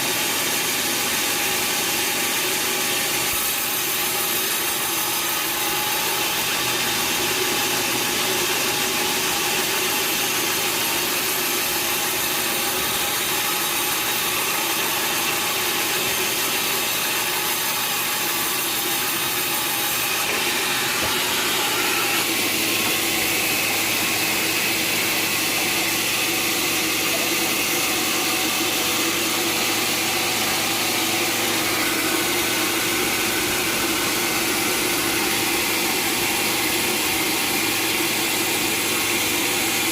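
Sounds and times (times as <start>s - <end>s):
sawmill machinery humming: 0.0s - 39.9s
machine whine: 20.0s - 39.9s.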